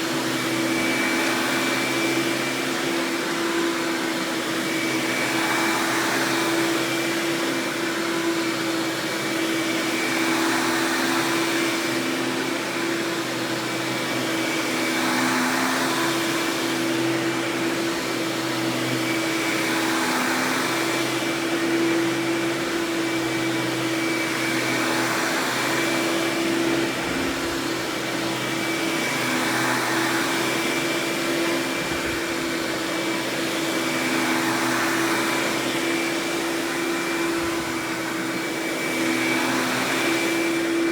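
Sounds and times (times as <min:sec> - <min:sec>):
upright vacuum cleaner running: 0:00.0 - 0:40.9.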